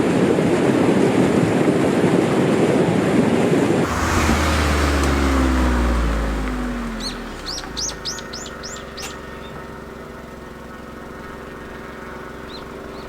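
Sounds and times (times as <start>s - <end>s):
vehicle passing: 3.8s - 8.8s
steady low hum: 3.8s - 13.0s
small bird chirping: 7.0s - 9.8s, 12.4s - 13.0s.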